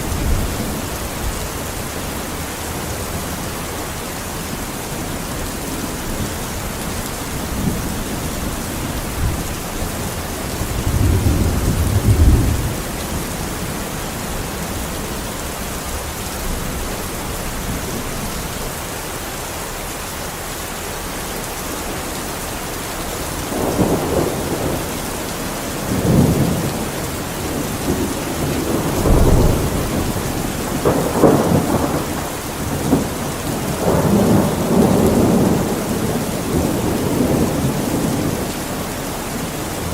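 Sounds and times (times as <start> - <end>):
rain hissing: 0.0 - 39.9.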